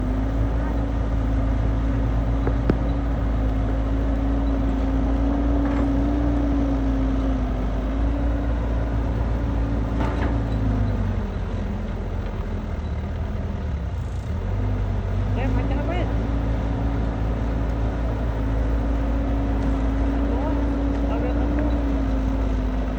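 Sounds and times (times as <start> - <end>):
diesel engine running under load: 0.0 - 22.9.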